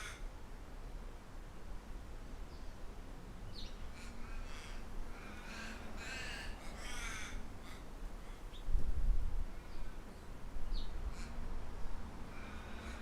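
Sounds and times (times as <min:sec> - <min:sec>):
low wind rumble: 0:00.0 - 0:13.0.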